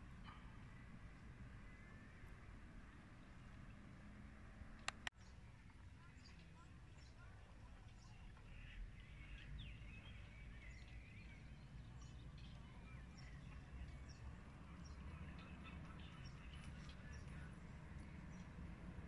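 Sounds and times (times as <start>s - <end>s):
small birds chirping: 4.7s - 19.0s.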